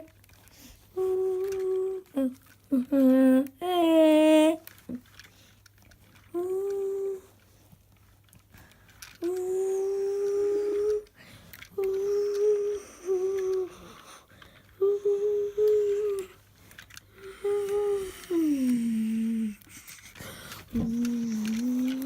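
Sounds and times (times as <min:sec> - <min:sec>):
voice holding long notes: 0:20.7 - 0:22.0.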